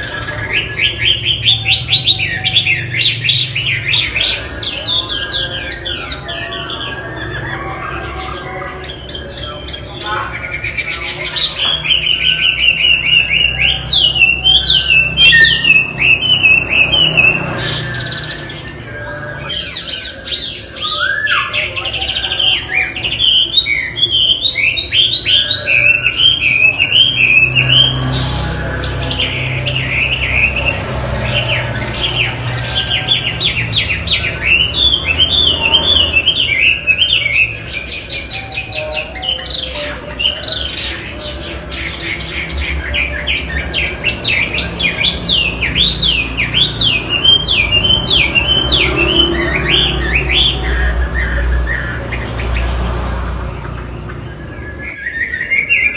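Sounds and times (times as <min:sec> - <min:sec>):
bird singing whistled notes: 0:10.5 - 0:40.9, 0:53.8 - 0:55.9.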